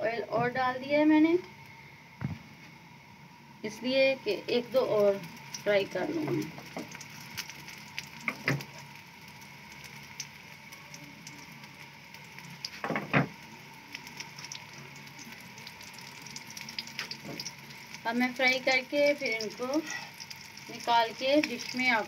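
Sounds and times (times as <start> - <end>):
food sizzling in oil: 3.4 - 22.0.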